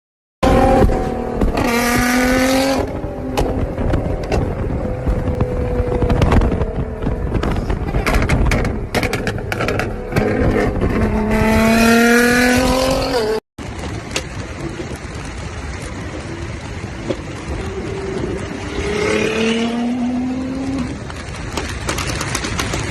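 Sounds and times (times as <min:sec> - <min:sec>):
car exhaust revving: 0:00.4 - 0:13.4
exhaust pops and crackles: 0:00.4 - 0:22.9.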